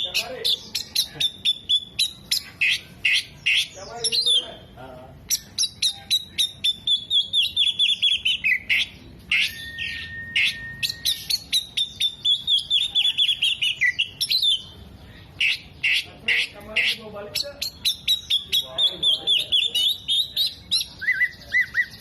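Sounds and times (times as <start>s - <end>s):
songbird singing: 0.0s - 22.0s
long even bird whistle: 9.4s - 14.1s.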